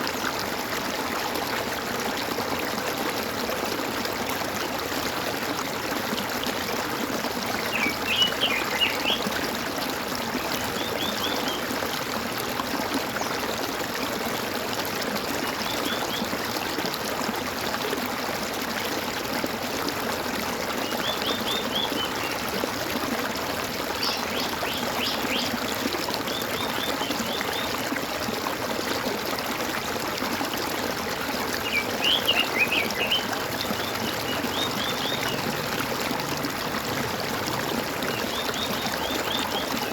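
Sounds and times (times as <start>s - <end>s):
stream trickling and gurgling: 0.0s - 39.9s
small birds chirping: 31.6s - 35.5s.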